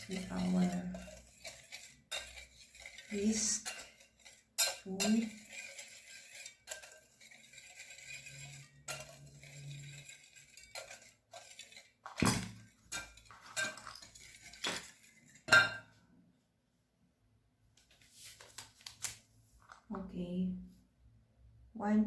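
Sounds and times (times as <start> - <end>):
whisk scraping in a bowl: 0.0 - 15.6.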